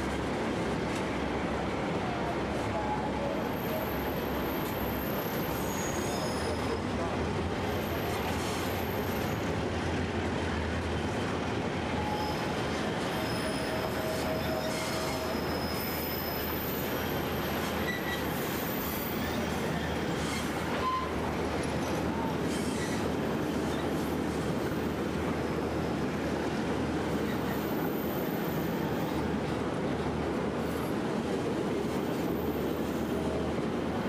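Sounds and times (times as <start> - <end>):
wheels rumbling on rail: 0.0 - 34.0
wheel squeals: 4.5 - 6.8, 13.1 - 17.0, 17.7 - 21.2.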